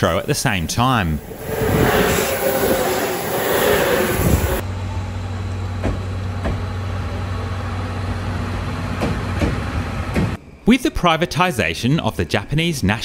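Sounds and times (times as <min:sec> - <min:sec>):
train rushing noise: 0:00.7 - 0:04.6.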